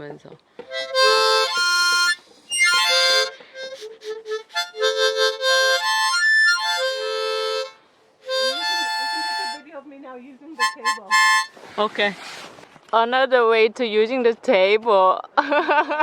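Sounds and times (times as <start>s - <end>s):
harmonica playing: 0.7s - 9.7s, 10.6s - 11.6s.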